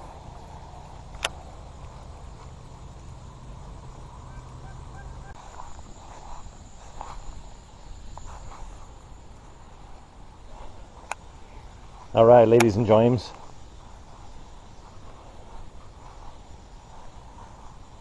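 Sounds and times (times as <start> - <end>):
faint bird calls: 0.0 - 5.9
faint high insect buzz: 0.0 - 18.0
low steady hum: 0.0 - 18.0.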